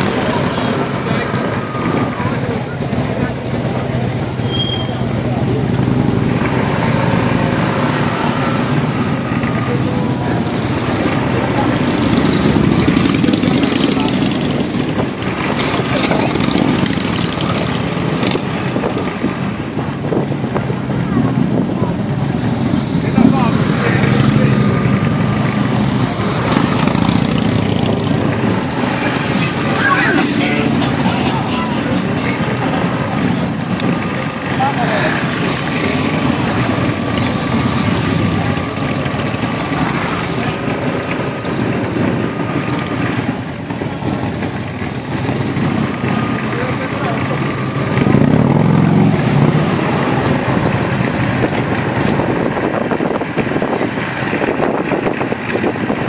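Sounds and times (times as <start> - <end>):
motorcycle engines running: 0.0 - 56.0
motorcycle engine idling: 8.7 - 18.7.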